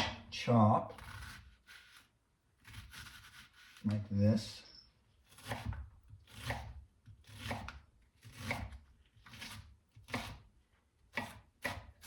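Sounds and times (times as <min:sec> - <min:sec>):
knife chopping onion on board: 0:05.3 - 0:10.5, 0:11.1 - 0:12.0.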